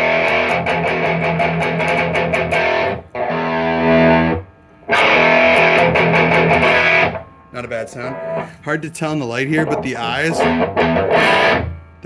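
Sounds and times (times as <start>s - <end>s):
distorted electric guitar riff: 0.0s - 12.0s.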